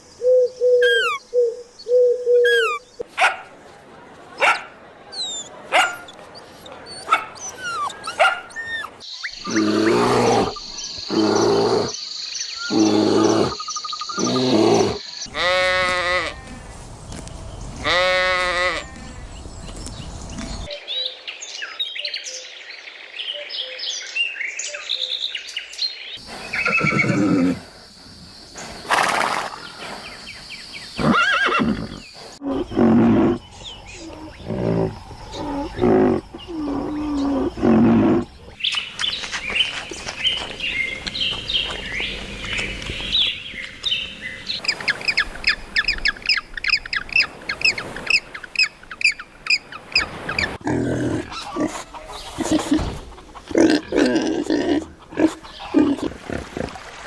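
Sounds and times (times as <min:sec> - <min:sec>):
animal high chirping: 0:00.8 - 0:01.2, 0:02.4 - 0:02.9, 0:06.8 - 0:11.9
loud animal calls: 0:07.0 - 0:12.0.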